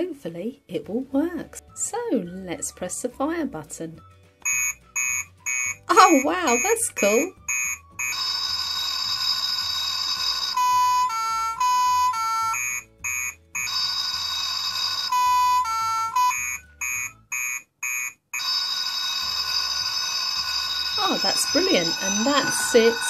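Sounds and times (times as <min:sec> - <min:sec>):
toy fire alarm nee-naw: 0:04.5 - 0:23.0.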